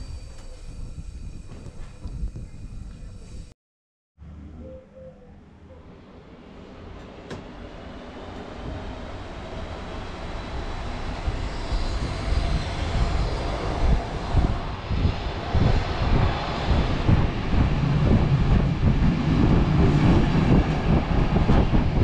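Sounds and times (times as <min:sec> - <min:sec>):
train running rumble: 0:06.4 - 0:22.0.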